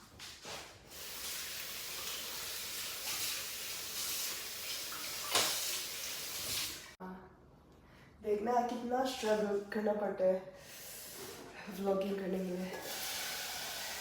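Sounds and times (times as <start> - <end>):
tap running into sink: 4.7 - 6.7.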